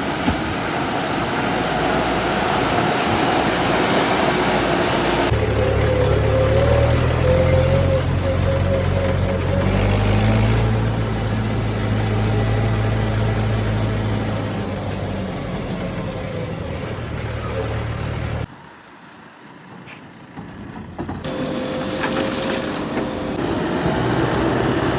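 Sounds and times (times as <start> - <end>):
diesel engine running: 0.0 - 24.9.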